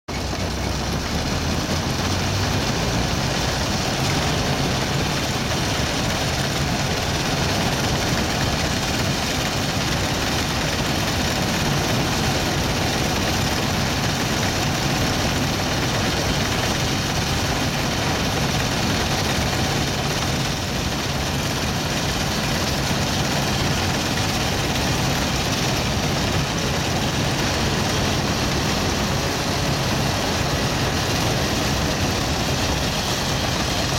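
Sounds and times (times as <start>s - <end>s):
combine harvester running: 0.1s - 33.9s.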